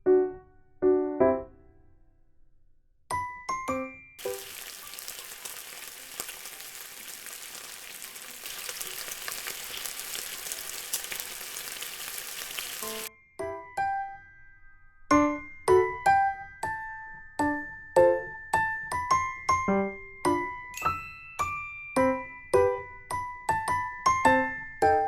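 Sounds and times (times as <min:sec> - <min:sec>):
beef sizzling on a grill: 0:04.2 - 0:13.1.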